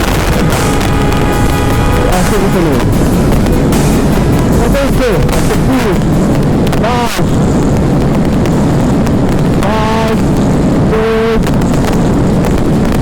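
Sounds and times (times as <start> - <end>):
vehicle horn blasts: 0.0 - 4.6
motorcycle engine: 0.0 - 13.0
wind noise on microphone: 0.0 - 13.0.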